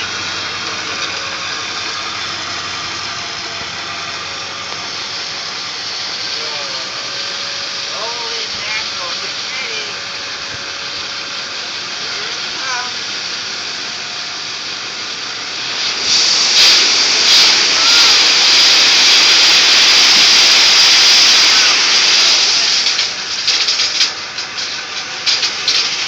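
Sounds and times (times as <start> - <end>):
gravel sliding out of truck bed: 0.0 - 8.5, 15.5 - 26.0.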